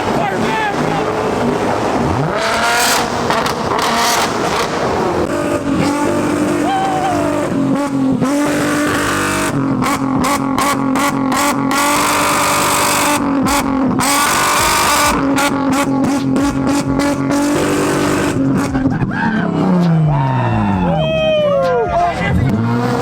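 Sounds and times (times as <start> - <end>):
car engine on rev limiter: 0.0 - 20.8, 22.0 - 23.0.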